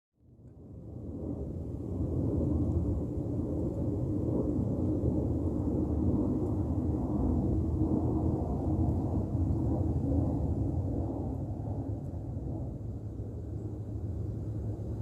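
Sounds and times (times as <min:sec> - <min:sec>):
aircraft engine rumble: 0:00.3 - 0:15.0.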